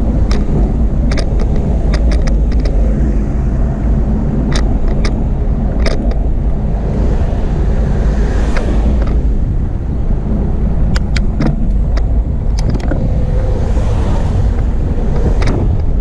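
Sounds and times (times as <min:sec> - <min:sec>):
bike clicks and rattles: 0:00.0 - 0:03.2, 0:04.3 - 0:06.6, 0:08.5 - 0:09.2, 0:10.7 - 0:13.5, 0:14.5 - 0:16.0
bicycle riding wind and rolling: 0:00.0 - 0:16.0.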